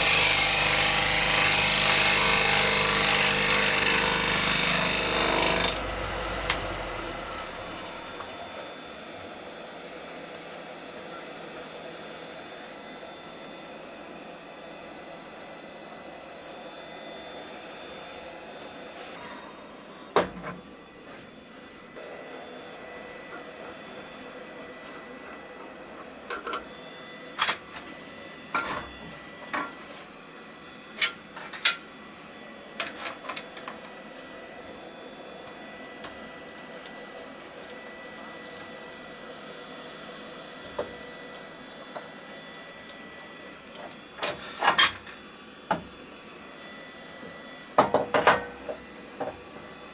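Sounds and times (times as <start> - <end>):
workshop motor humming: 0.0 - 9.5.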